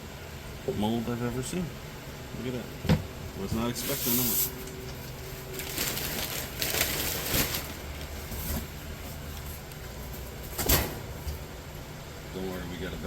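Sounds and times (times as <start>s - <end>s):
packaging rustles and knocks: 5.6s - 8.8s.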